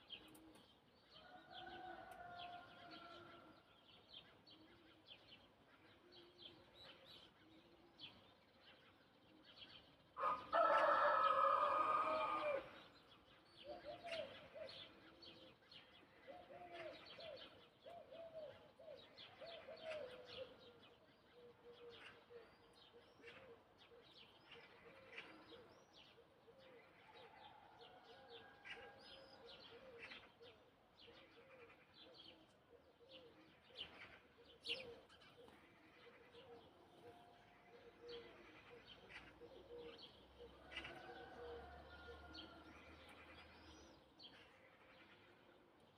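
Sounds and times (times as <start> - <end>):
rooster crowing: 10.2 - 12.7, 40.7 - 42.7.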